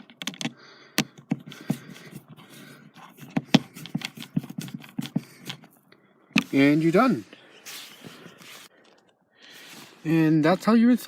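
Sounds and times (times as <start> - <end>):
screwdriver clicking and scraping: 0.0 - 6.6.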